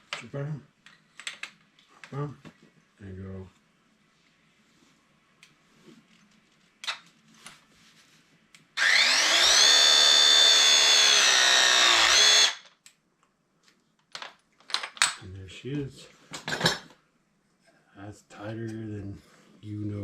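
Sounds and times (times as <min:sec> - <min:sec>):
power tool motor whining: 0:08.8 - 0:12.7.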